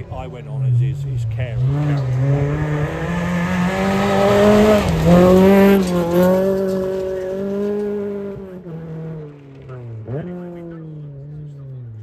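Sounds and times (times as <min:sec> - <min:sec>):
rally car engine at high revs: 0:00.0 - 0:12.0.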